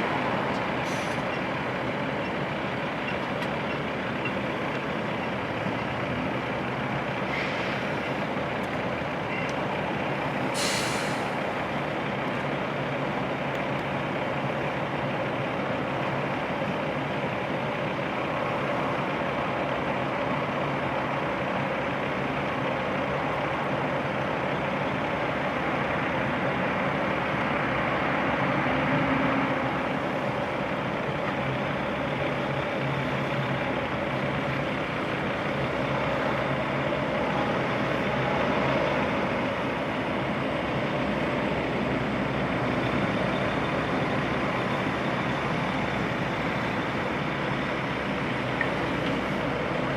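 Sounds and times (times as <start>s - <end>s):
heavy diesel truck engines running: 0.0s - 49.9s
air release hiss: 10.6s - 11.4s.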